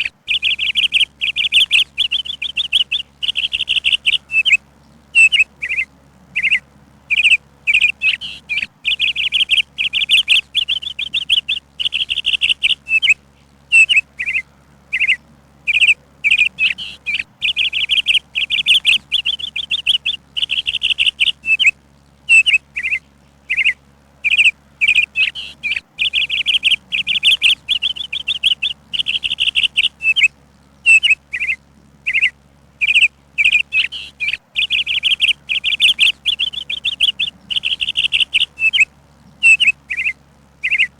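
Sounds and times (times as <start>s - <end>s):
songbird chirping and trilling: 0.0s - 40.9s.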